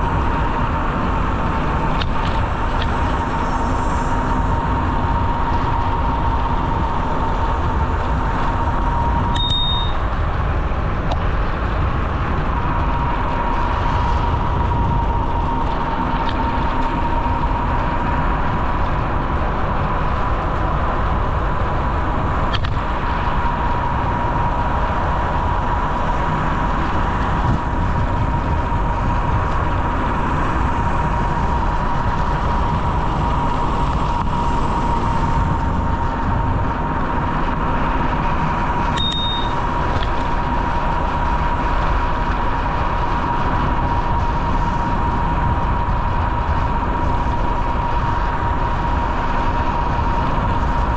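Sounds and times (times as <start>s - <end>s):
bicycle rolling noise: 0.0s - 50.9s
constant whine: 0.0s - 50.9s
bell-like ding: 9.4s - 10.2s, 39.0s - 39.7s.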